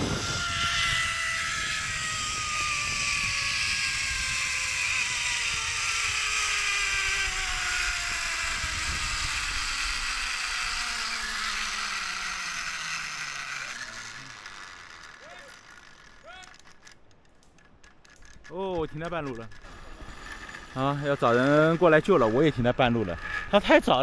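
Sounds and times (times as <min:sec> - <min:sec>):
rushing wind: 0:00.0 - 0:12.6
zipline pulleys whirring on cable: 0:00.0 - 0:24.0.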